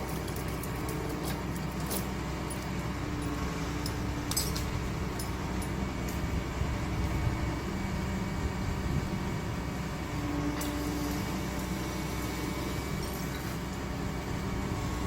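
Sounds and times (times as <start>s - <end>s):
short metallic clinks: 0.0s - 5.8s
excavator engine running: 0.0s - 15.0s.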